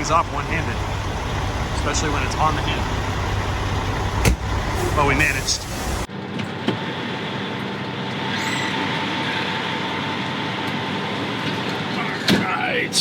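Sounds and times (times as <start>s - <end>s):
truck diesel engine idling: 0.0s - 6.1s.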